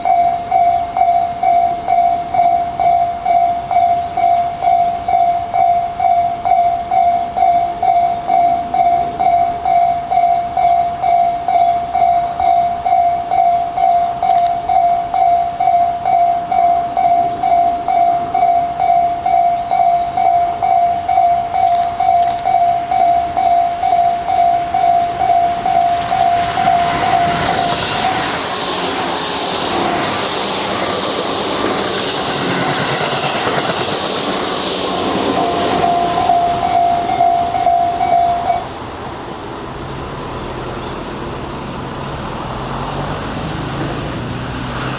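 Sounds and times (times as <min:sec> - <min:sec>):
level crossing bell ringing: 0:00.0 - 0:28.7, 0:35.0 - 0:38.7
train passing: 0:00.0 - 0:44.9.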